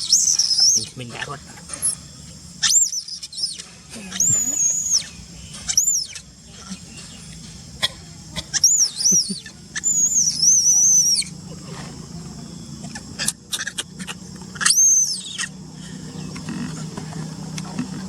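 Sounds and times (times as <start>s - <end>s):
infant monkey squealing: 0.0s - 2.0s, 2.6s - 6.9s, 8.4s - 11.6s, 12.8s - 15.6s.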